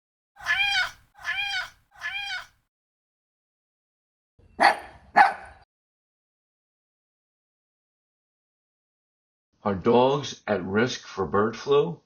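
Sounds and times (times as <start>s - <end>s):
cat meowing: 0.4s - 2.5s.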